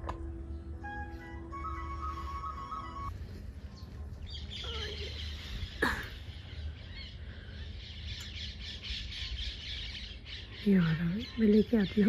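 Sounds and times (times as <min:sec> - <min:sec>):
steady held tune: 0:00.0 - 0:03.4
birds chirping: 0:00.2 - 0:12.0.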